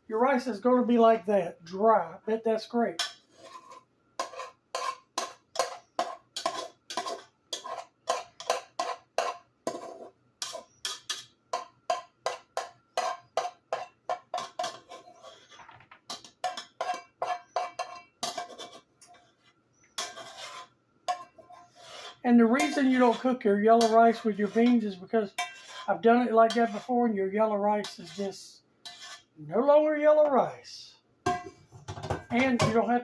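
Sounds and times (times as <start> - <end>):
spoon scraping metal pot: 3.0 - 27.0, 27.8 - 29.4.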